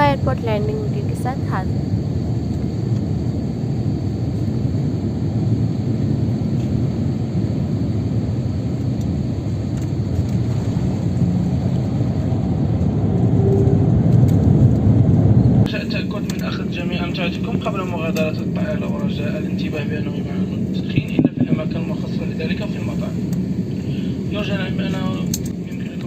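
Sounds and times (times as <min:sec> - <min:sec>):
jet airliner cabin rumble: 0:00.0 - 0:26.0.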